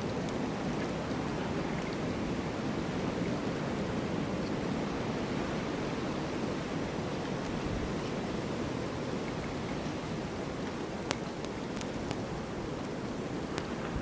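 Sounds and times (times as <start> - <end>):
snowstorm wind blowing: 12.5 - 14.0.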